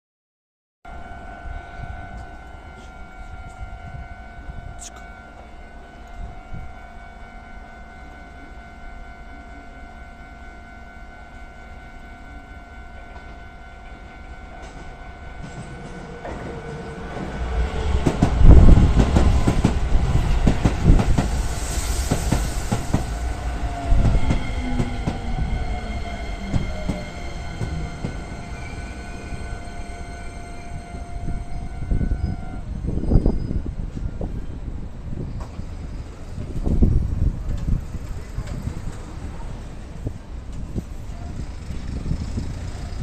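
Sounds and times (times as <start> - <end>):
train motor whine: 0.9 - 34.5
train wheels rumbling and clicking: 14.5 - 29.0, 35.2 - 43.0.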